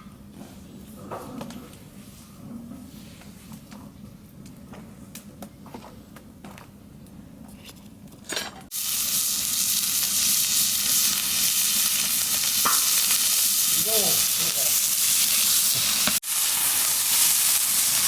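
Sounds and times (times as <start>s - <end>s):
pork sizzling frying: 8.7s - 18.0s.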